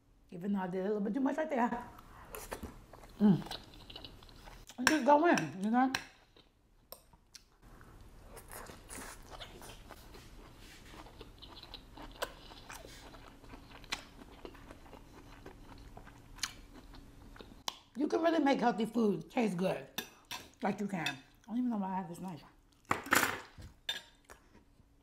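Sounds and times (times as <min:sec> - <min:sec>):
wet chewing with light crunching: 0:02.0 - 0:04.8, 0:05.4 - 0:18.0, 0:23.6 - 0:25.0.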